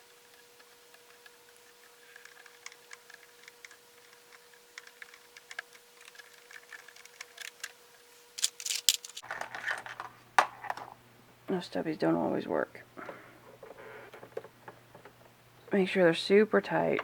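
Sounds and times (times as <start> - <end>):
screwdriver clicking and scraping: 8.4 - 9.2.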